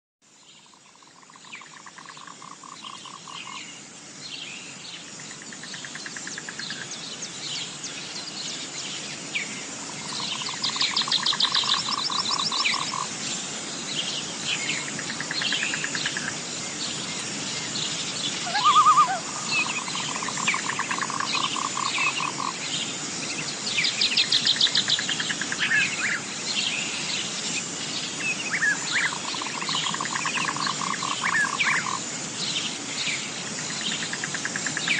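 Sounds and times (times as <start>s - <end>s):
frogs trilling: 0.6s - 3.8s, 5.2s - 7.0s, 9.4s - 13.2s, 14.7s - 17.3s, 18.3s - 22.8s, 23.9s - 32.1s, 33.6s - 34.9s
high insect buzz: 14.5s - 32.6s
birds chirping and calling: 18.3s - 22.6s.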